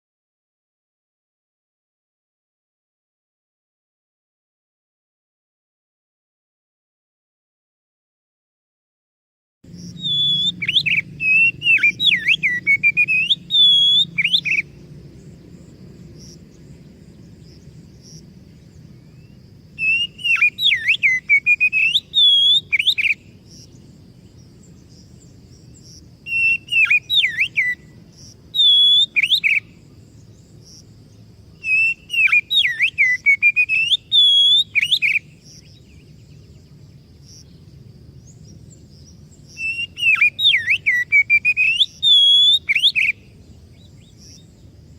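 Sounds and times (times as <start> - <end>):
bird singing whistled phrases: 9.9 - 14.8, 19.0 - 23.8, 26.2 - 29.8, 31.6 - 36.4, 39.5 - 44.5.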